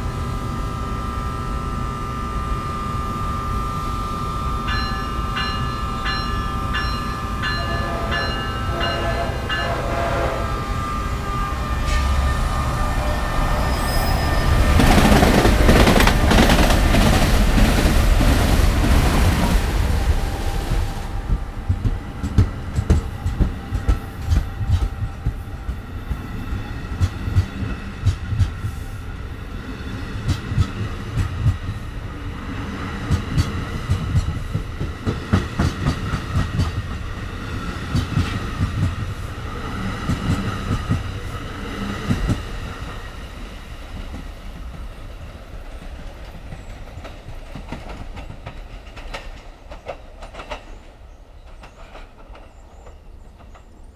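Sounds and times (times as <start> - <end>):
train wheels clacking over rail joints: 21.2 - 26.3, 26.9 - 28.8, 30.2 - 31.8, 33.0 - 39.2, 45.6 - 53.9.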